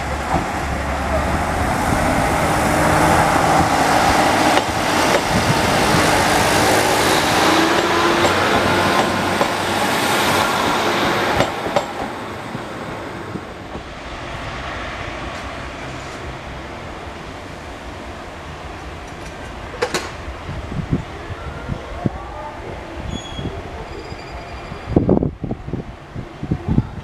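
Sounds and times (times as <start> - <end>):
distant train running: 0.0 - 25.1
diesel train passing: 0.0 - 26.6
wheels clicking over rail joints: 19.0 - 20.2.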